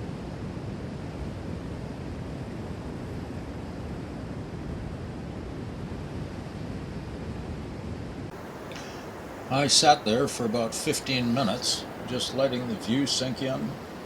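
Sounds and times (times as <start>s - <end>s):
wind on microphone: 0.0s - 14.0s
ocean surf: 8.3s - 14.0s.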